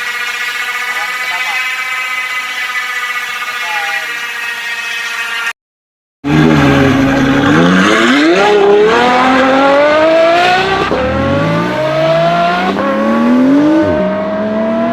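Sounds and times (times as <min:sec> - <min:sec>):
transmission whine: 0:00.0 - 0:05.5.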